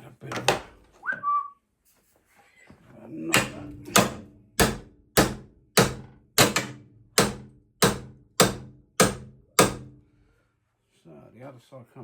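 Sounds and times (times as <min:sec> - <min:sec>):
hammer striking steel bracket: 0:03.3 - 0:10.0.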